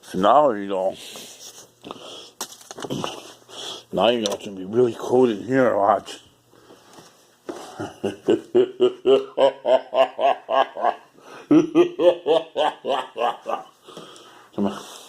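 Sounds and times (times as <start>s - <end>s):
man laughing: 7.6s - 13.8s.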